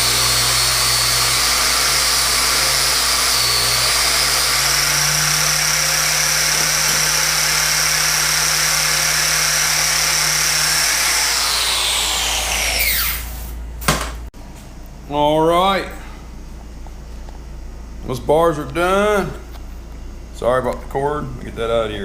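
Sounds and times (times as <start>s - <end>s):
angle grinder whining: 0.0s - 13.6s.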